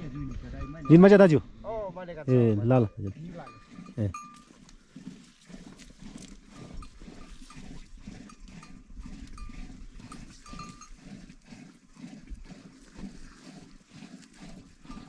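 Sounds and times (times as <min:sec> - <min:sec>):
neck bells clinking: 0:00.0 - 0:01.4, 0:02.1 - 0:04.6.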